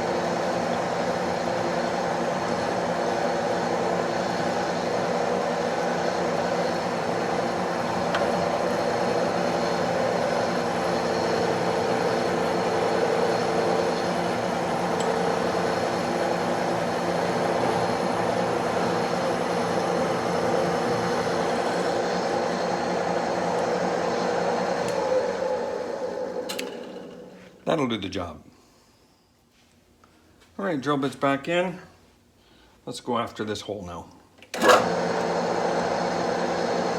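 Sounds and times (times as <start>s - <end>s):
metal lathe running: 0.0s - 27.5s, 34.6s - 36.9s.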